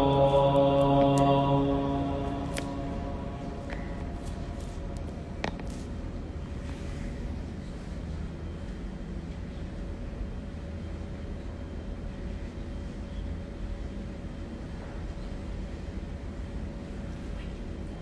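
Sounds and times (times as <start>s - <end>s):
low rumble: 0.0s - 6.2s
faint steady hum: 0.0s - 18.0s.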